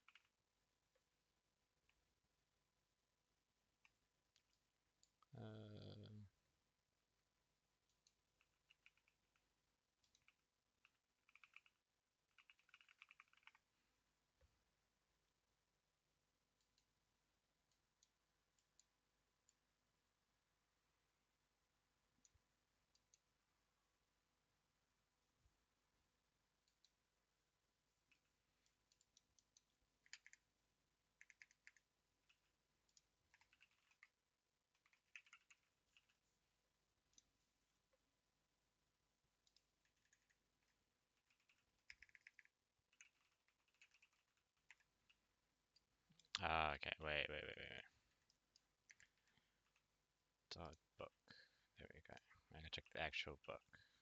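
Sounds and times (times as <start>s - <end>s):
typing on computer keyboard: 0.0s - 0.4s, 8.4s - 9.4s, 10.0s - 13.7s, 28.9s - 30.5s, 31.2s - 36.2s, 39.5s - 45.0s
faint keyboard typing: 0.0s - 1.1s, 3.7s - 6.1s, 7.8s - 13.8s, 22.1s - 23.4s, 26.6s - 27.1s, 27.9s - 38.1s, 39.4s - 46.5s, 47.4s - 54.0s.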